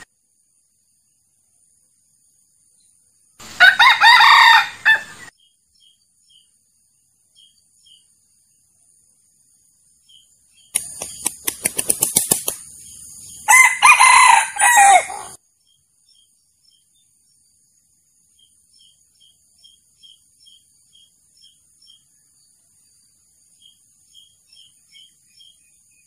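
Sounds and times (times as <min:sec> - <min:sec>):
rooster crowing: 0:03.6 - 0:05.3, 0:13.5 - 0:15.4
wings beating: 0:10.7 - 0:12.8.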